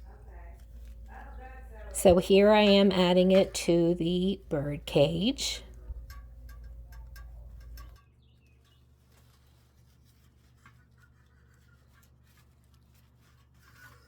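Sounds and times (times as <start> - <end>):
clicks and rustles of artificial flowers: 0.0 - 2.8, 5.6 - 14.0
low hum: 0.0 - 8.0.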